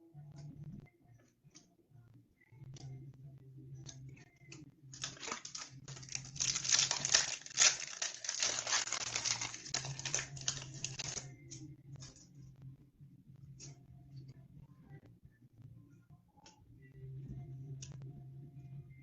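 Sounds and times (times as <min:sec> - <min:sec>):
foil wrapper tearing and crinkling: 0:05.0 - 0:11.2.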